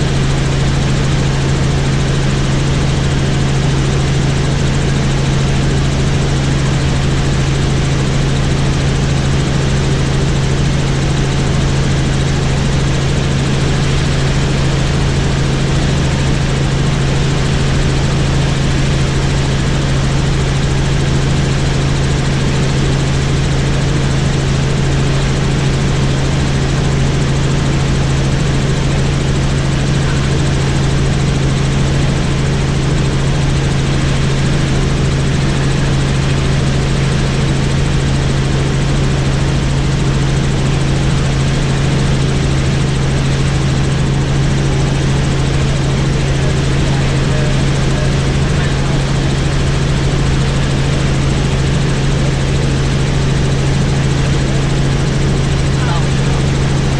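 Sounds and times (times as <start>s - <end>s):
helicopter drone: 0.0s - 56.9s.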